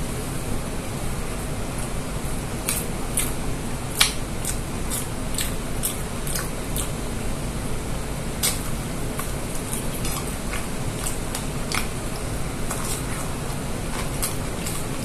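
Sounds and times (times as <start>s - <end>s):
steady low hum: 0.0s - 15.0s
person chewing meat: 2.6s - 7.2s, 8.0s - 15.0s
wet mouth smacks: 2.7s - 3.4s, 4.0s - 7.0s, 8.4s - 11.9s.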